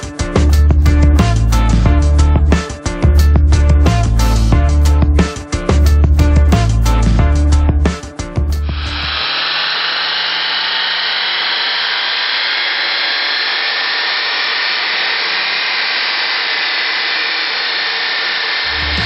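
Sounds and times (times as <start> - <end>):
car engine at full throttle: 8.6 - 19.0.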